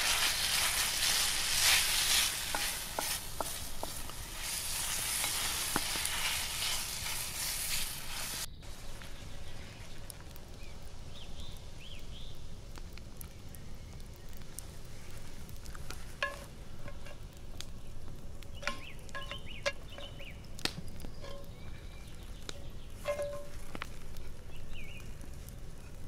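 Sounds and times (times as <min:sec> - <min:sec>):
campfire crackling: 0:00.0 - 0:26.0
faint bird chirps: 0:17.8 - 0:23.5.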